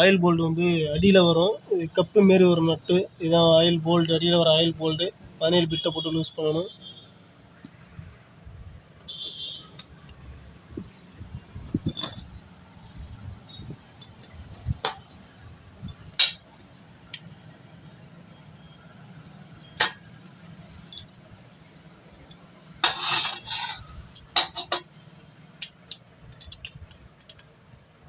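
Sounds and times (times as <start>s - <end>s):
wrench clinking on metal bolt: 9.7s - 10.3s, 11.8s - 12.4s, 20.8s - 21.2s, 25.9s - 27.4s.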